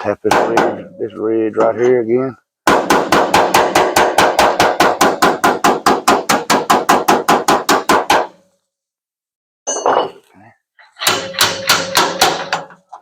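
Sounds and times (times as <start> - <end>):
hammer tapping sheet metal: 0.0 - 1.7, 2.7 - 8.4, 11.0 - 12.8.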